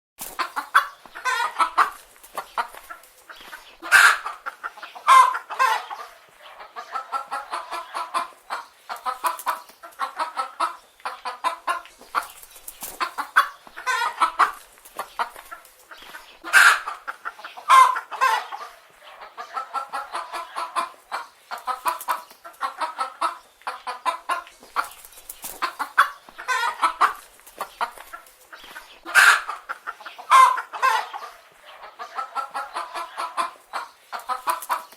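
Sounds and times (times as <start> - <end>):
hens clucking: 0.2 - 34.9
sharp hen squawks: 3.4 - 12.3, 16.1 - 18.7, 28.6 - 34.8.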